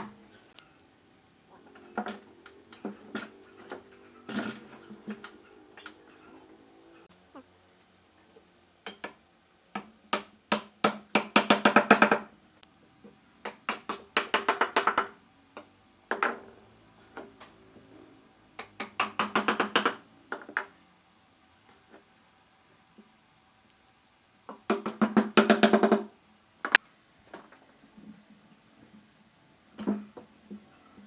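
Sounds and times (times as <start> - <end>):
hammering on wood: 8.9 - 12.3, 13.4 - 15.2, 18.6 - 20.7, 24.5 - 26.1.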